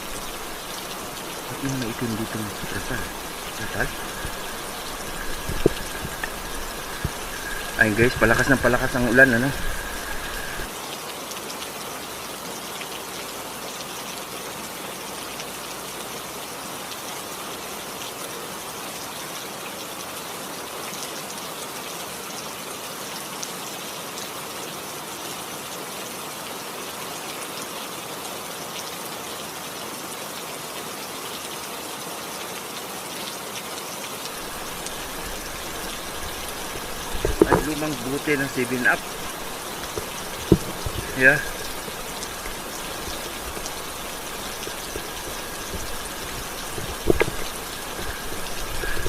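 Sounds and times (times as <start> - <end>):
raindrop ticks: 0.0 - 10.7, 34.2 - 49.0
heavy rain falling: 0.0 - 12.4, 34.1 - 49.0.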